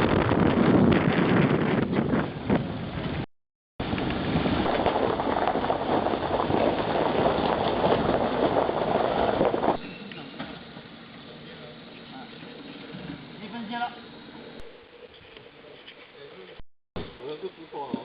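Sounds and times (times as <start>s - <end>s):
wind on microphone: 0.0s - 10.0s
vehicle rushing on rough track: 3.8s - 14.6s.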